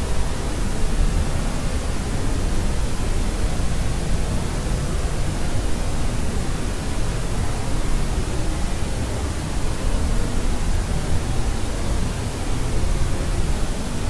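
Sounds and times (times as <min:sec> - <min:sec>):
white noise hiss: 0:00.0 - 0:14.0.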